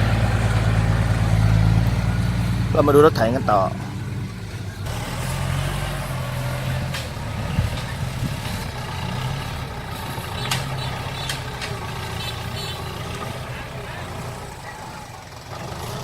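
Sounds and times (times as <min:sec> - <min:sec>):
heavy vehicle engine running: 0:00.0 - 0:16.0.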